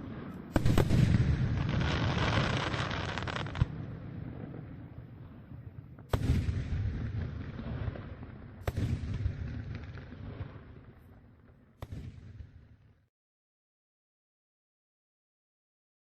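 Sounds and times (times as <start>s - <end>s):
fireworks bursting in deep booms: 0.0s - 13.1s.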